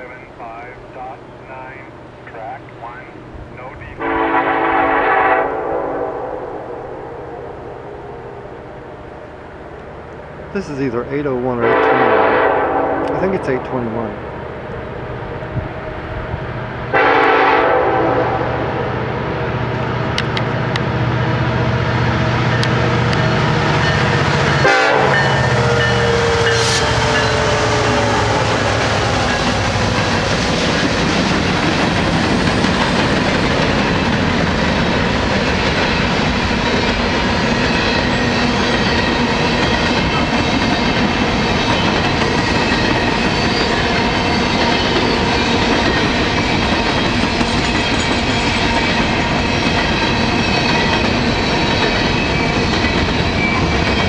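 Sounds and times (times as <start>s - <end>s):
locomotive engine drone: 0.0s - 54.0s
locomotive horn blast: 4.0s - 8.4s, 11.6s - 14.1s, 16.9s - 19.0s, 24.4s - 28.6s.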